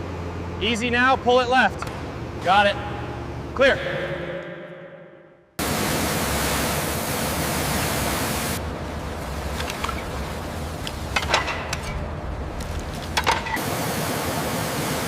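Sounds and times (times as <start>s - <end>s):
steady rushing hiss: 5.6s - 15.0s.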